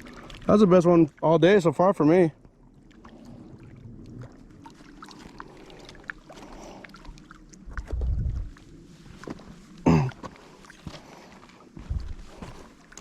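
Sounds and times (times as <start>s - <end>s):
low rumble: 7.6s - 9.0s.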